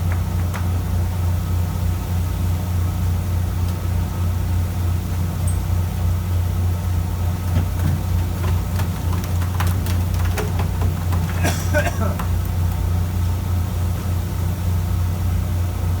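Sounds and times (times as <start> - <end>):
boat diesel engine humming: 0.0 - 16.0.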